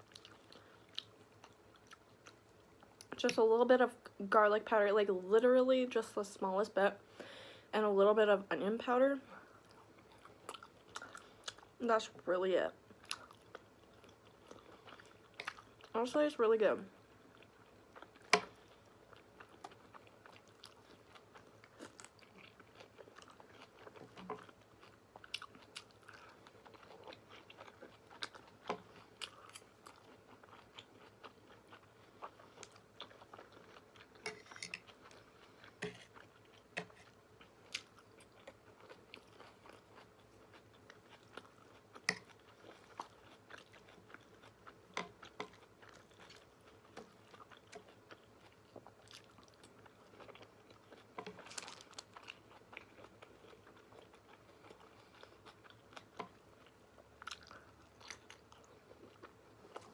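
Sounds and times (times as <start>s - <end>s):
food crunching: 17.0s - 59.9s.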